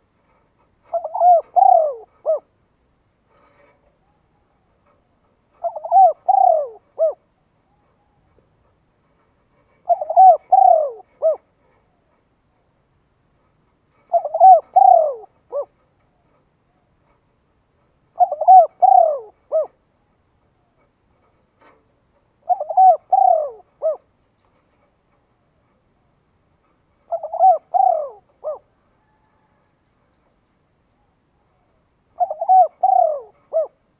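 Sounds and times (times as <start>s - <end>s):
bird calling: 0.8s - 2.5s, 5.5s - 8.4s, 9.7s - 11.5s, 14.0s - 15.8s, 18.2s - 19.8s, 22.4s - 24.1s, 27.1s - 29.6s, 30.9s - 33.8s.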